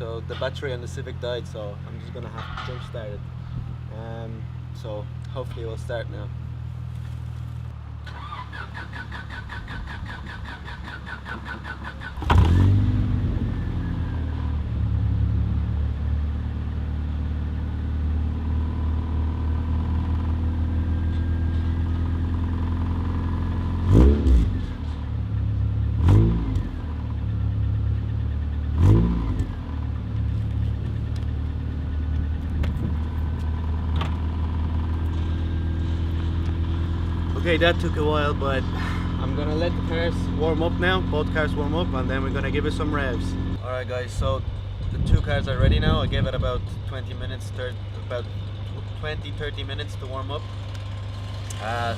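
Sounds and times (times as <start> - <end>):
car engine idling: 26.8 - 51.9.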